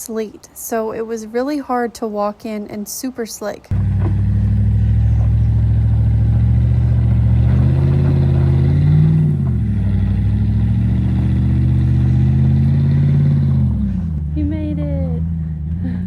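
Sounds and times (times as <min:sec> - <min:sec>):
car engine revving: 0:03.7 - 0:16.0.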